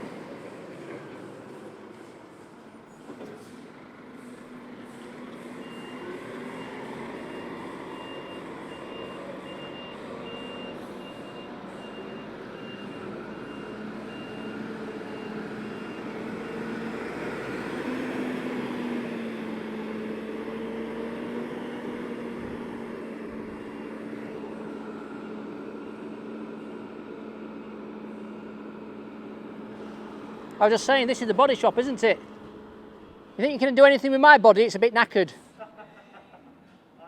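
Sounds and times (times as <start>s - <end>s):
lorry diesel engine running: 0.0s - 33.8s
reversing alarm beeping: 5.6s - 16.7s.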